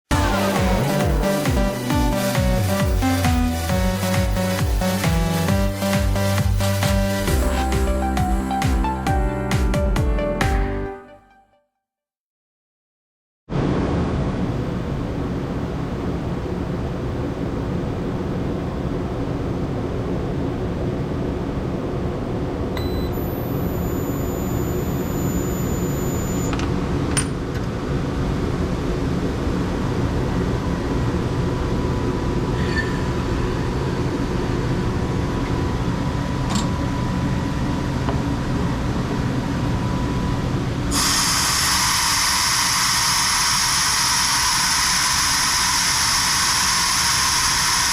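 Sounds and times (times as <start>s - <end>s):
machine humming: 0.1s - 9.4s
short electronic beeps: 22.8s - 26.5s
thin high tone: 22.8s - 26.5s.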